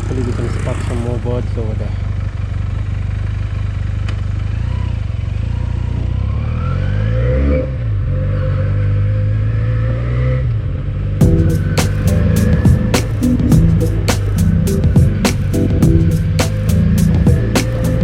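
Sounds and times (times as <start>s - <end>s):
motorcycle engine pulling away: 0.0s - 8.1s.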